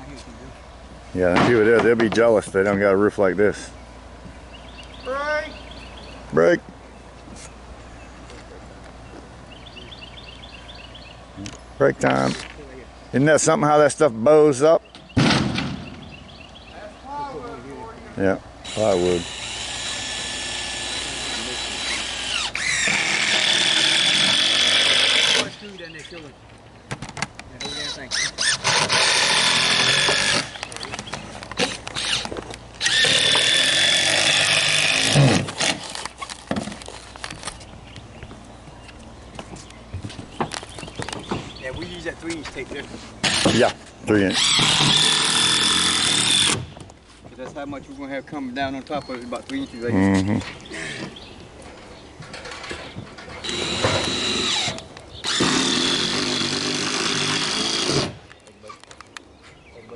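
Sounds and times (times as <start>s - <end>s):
power drill whining: 18.6s - 25.6s, 27.6s - 30.6s, 31.6s - 36.0s, 43.2s - 43.6s, 44.3s - 46.6s, 53.4s - 58.2s.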